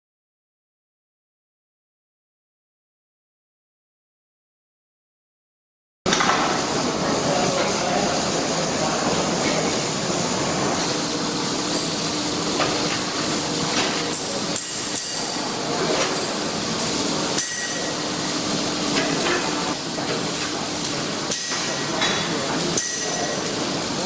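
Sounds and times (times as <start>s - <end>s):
steady welding hiss: 6.1s - 24.0s
hammer striking metal: 17.4s - 18.0s, 22.8s - 23.4s.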